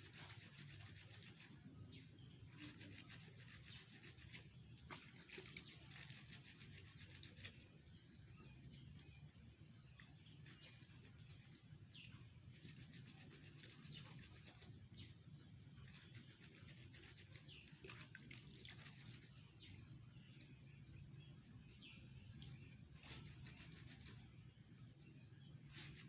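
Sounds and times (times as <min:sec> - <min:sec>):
faint birds chirping: 0:00.0 - 0:26.0
low steady hum: 0:17.0 - 0:26.0.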